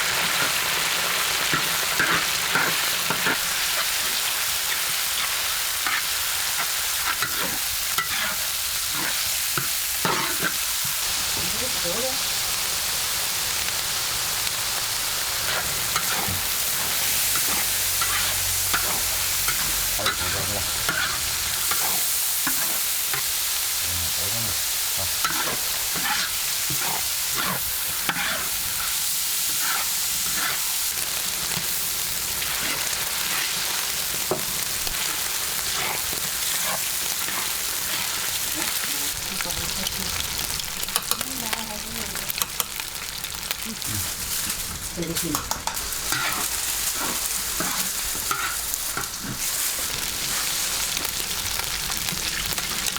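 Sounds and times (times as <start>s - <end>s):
food sizzling in hot oil: 0.0s - 52.9s
utensil scraping a pan: 5.2s - 10.6s, 15.4s - 23.3s, 25.1s - 30.8s, 32.4s - 38.9s, 44.0s - 50.7s.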